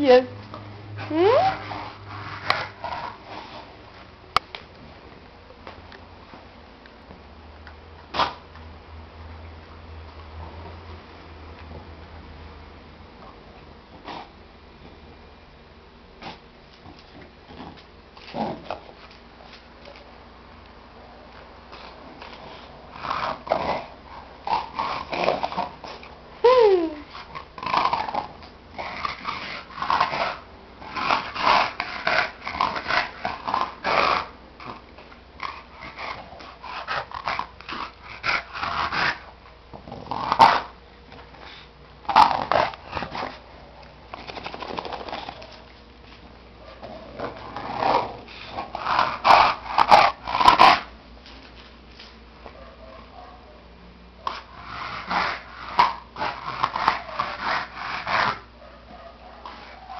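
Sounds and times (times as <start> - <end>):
dog whimper: 1.0 - 1.7, 26.4 - 27.2
dog snoring: 21.8 - 34.8, 35.4 - 40.7.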